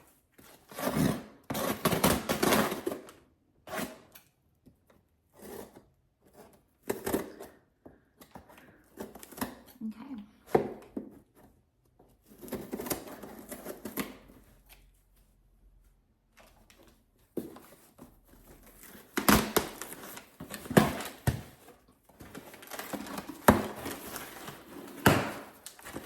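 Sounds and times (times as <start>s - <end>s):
packaging rustling and crinkling: 16.4s - 26.0s.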